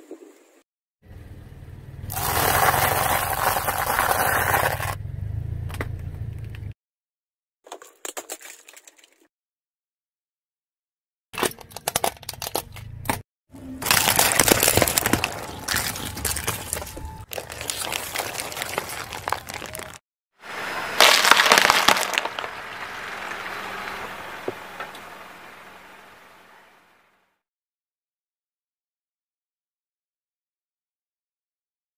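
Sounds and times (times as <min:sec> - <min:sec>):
toys cracking and snapping: 0:13.8 - 0:20.0, 0:21.0 - 0:22.5.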